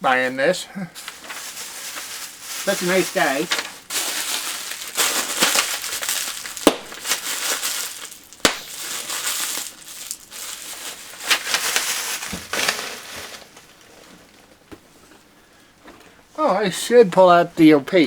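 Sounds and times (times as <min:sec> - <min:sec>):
packaging crinkling and crushing: 0:01.0 - 0:14.6.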